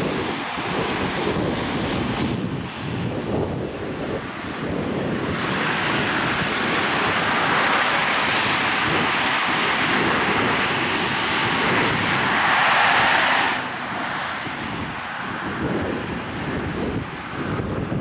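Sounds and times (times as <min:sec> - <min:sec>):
passing train rushing noise: 0:00.0 - 0:18.0.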